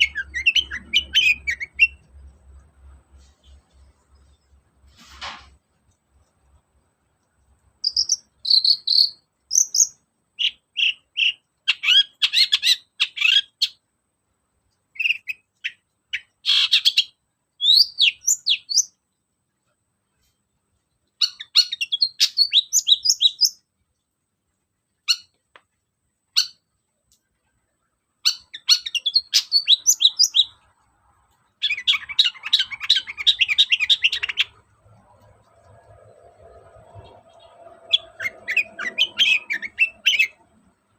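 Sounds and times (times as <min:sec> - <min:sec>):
shrike singing chirps and whistles: 0:00.0 - 0:02.0, 0:07.8 - 0:13.8, 0:15.0 - 0:19.0, 0:21.2 - 0:23.6, 0:26.3 - 0:26.6, 0:28.2 - 0:30.6, 0:31.6 - 0:34.6, 0:36.9 - 0:40.4.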